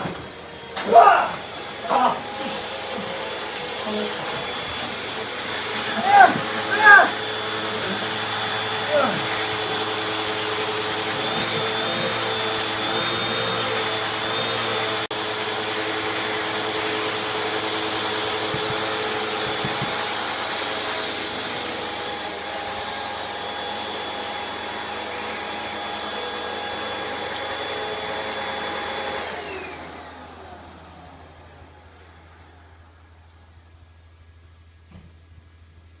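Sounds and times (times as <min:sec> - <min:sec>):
vacuum cleaner whining: 0:00.0 - 0:33.6
motor spinning down: 0:00.5 - 0:32.8.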